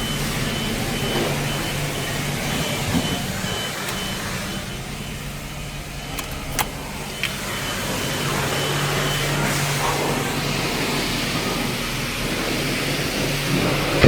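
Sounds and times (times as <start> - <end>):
faint high beep: 0.0 - 10.2
car engine idling: 0.0 - 14.0
sharp clicks: 6.0 - 7.4.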